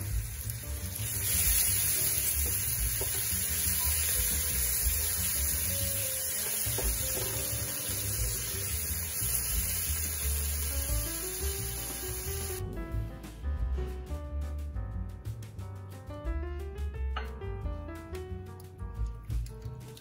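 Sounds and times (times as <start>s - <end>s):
masala sizzling in a frying pan: 0.0s - 12.6s
soft background music: 0.0s - 20.0s.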